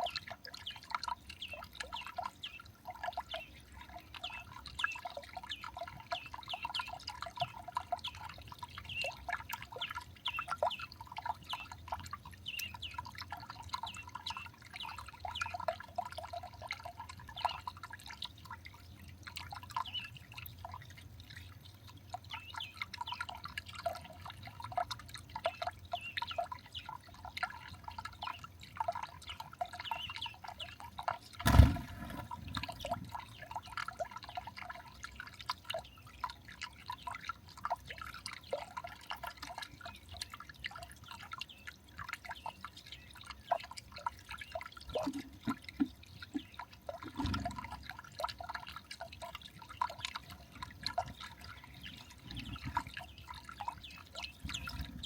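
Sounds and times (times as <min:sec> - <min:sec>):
dull thuds: 0:31.5 - 0:32.6.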